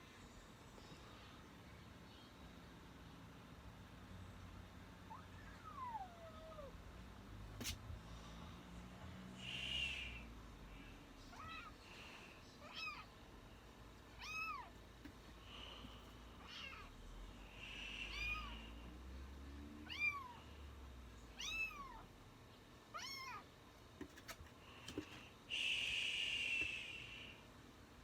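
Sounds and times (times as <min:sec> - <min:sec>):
kitten meowing: 0:14.2 - 0:14.7, 0:18.1 - 0:18.6, 0:21.4 - 0:22.0.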